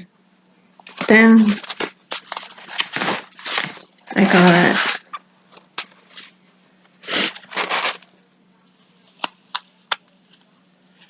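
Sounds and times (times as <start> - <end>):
faint steady hum: 0.0 - 11.0
plastic packaging crinkling: 0.8 - 8.2.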